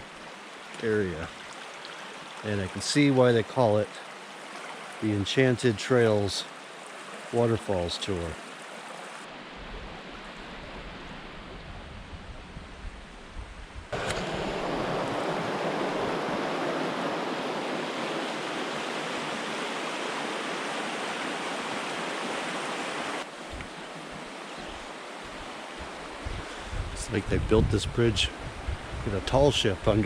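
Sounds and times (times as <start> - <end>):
river water rushing: 0.0 - 11.5, 14.0 - 26.3.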